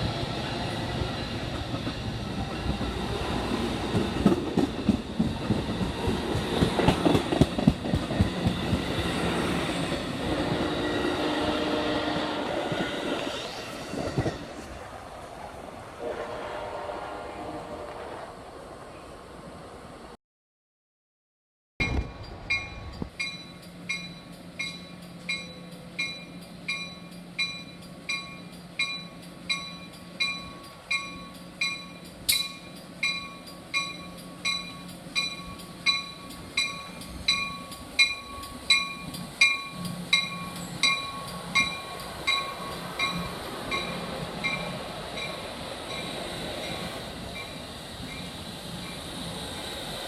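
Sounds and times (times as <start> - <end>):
train rumble: 0.0 - 20.1
railroad bell ringing: 21.8 - 49.1.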